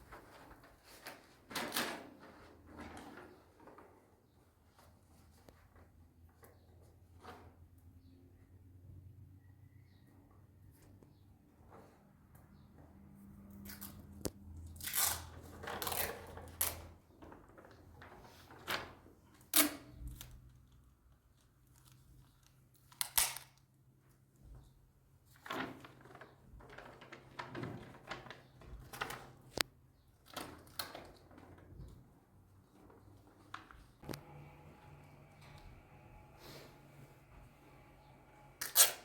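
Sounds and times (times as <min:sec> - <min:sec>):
tearing and crunching rustles: 0:14.8 - 0:16.6.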